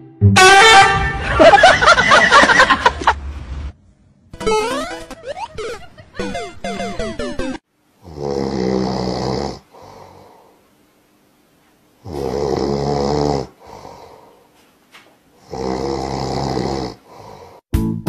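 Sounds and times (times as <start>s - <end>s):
kitten snoring: 8.0s - 10.3s, 12.0s - 14.1s, 15.4s - 17.6s.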